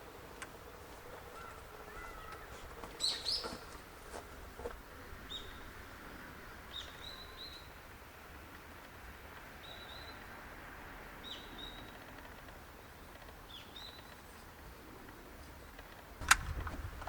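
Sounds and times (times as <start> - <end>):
small birds chirping: 0.0 - 10.4, 11.2 - 16.3
faint clicks: 0.3 - 3.8, 11.6 - 17.0.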